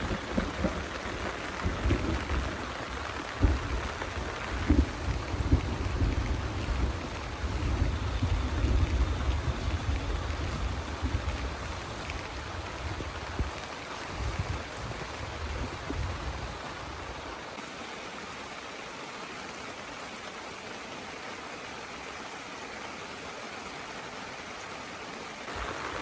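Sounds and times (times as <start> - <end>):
heavy rain falling: 0.0 - 18.2, 25.3 - 26.0.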